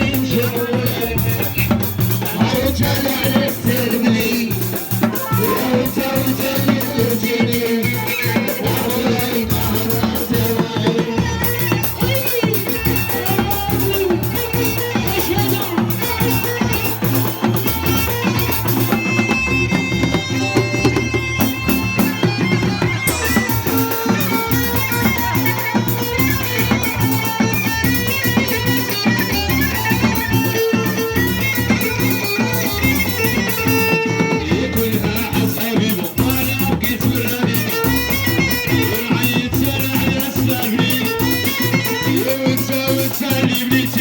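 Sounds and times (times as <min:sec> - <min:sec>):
steady drum beat: 0:00.0 - 0:44.0
violin playing: 0:08.1 - 0:34.8.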